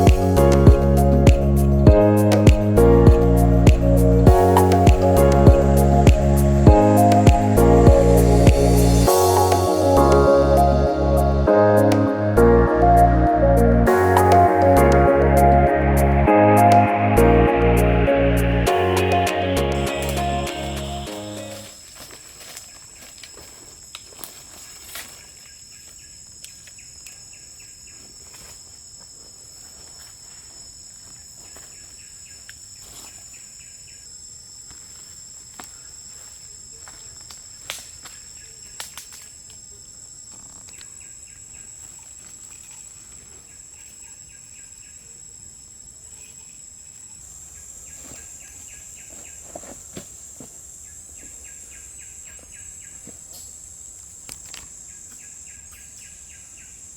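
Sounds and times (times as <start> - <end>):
rapid pulsed chirping: 0.0 - 21.9
insects buzzing: 0.0 - 56.9.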